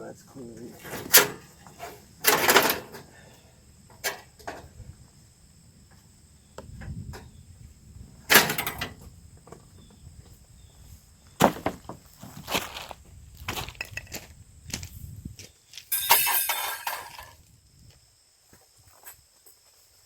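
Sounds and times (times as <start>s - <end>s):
sharp knocks and clanks on metal: 0.8s - 3.1s, 8.3s - 9.6s, 15.9s - 17.4s.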